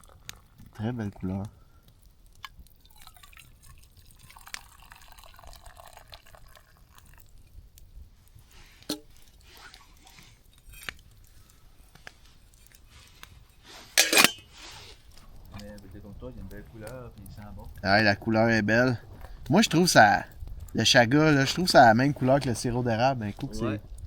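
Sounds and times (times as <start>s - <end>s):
tea trickling into a cup: 2.5s - 7.6s.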